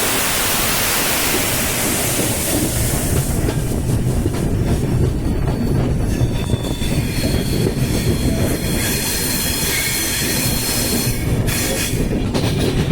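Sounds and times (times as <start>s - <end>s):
train rumbling on rails: 0.0s - 12.9s
high-pitched wheel squeal: 6.1s - 11.9s.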